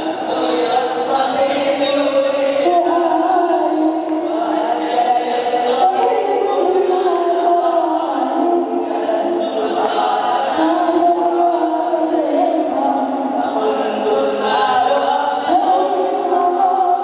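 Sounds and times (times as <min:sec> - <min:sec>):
unaccompanied voices singing: 0:00.0 - 0:17.0.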